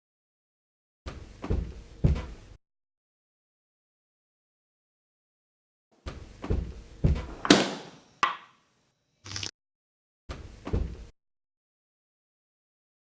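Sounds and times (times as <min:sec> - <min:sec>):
short hiss: 0:09.2 - 0:09.5.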